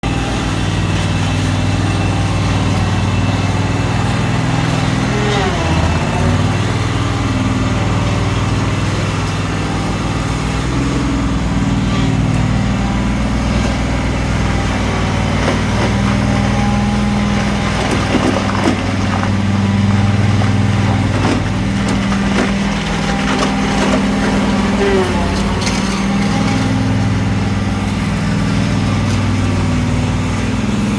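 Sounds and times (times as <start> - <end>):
floor scraper machine running: 0.0 - 30.9
cracking of broken-up layer: 15.1 - 26.5.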